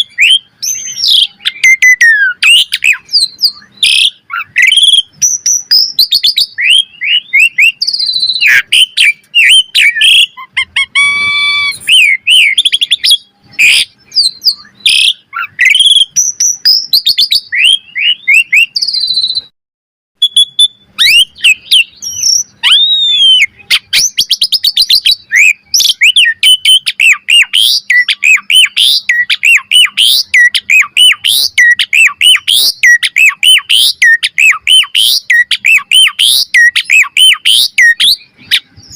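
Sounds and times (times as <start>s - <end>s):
starling singing: 0.0s - 19.5s, 20.2s - 38.9s.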